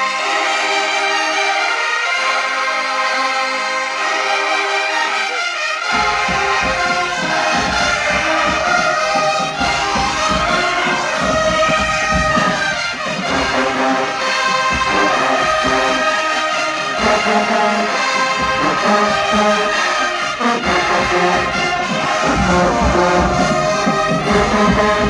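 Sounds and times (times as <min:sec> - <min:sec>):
low brass: 0:00.0 - 0:25.0
trombones and trumpets playing: 0:00.0 - 0:25.0
drums: 0:05.3 - 0:25.0.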